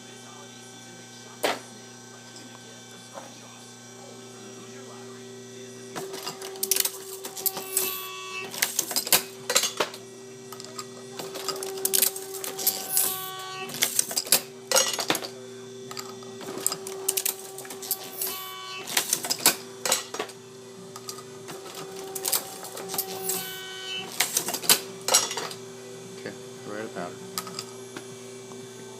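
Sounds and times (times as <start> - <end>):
reloading press hum: 6.0 - 15.3, 15.9 - 25.6.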